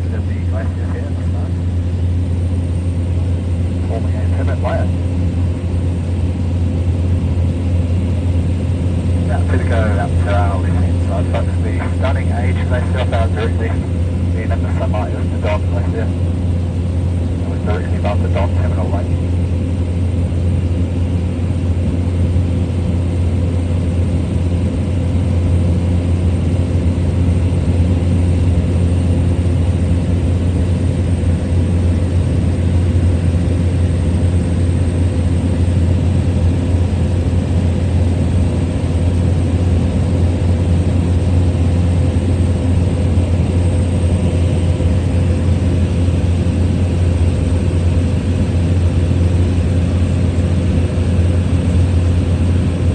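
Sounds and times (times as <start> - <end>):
small plane engine in cabin: 0.0 - 52.9.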